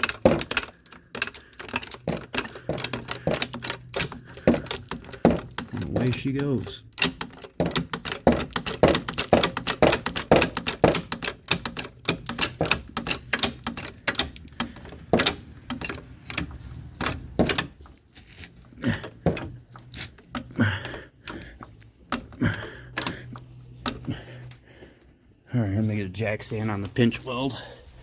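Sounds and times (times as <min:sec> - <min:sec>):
floor jack clicking: 0:00.0 - 0:17.8.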